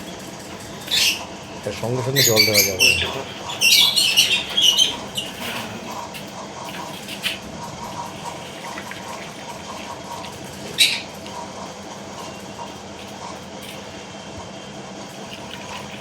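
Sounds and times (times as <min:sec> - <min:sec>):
lovebirds chirping: 0:00.6 - 0:05.5
water pouring into dishes: 0:15.2 - 0:16.0.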